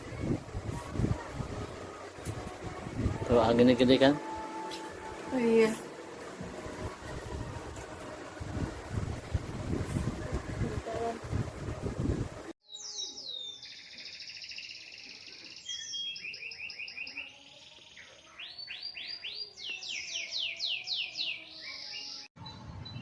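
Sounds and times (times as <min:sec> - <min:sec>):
songbird whistles and trills: 0:12.6 - 0:23.0.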